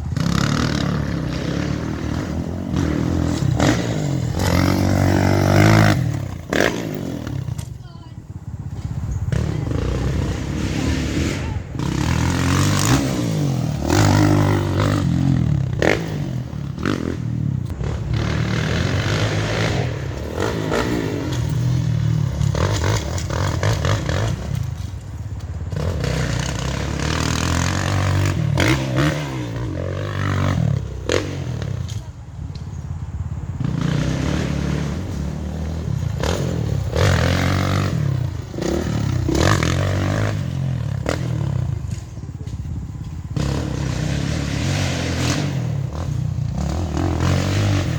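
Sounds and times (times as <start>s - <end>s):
dirt bike engine revving: 0.0s - 32.1s, 33.5s - 47.9s.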